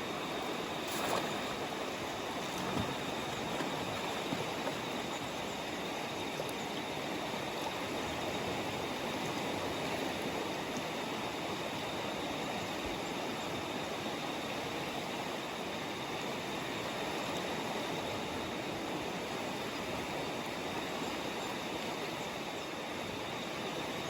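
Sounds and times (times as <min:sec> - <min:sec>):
river water rushing: 0:00.0 - 0:11.4.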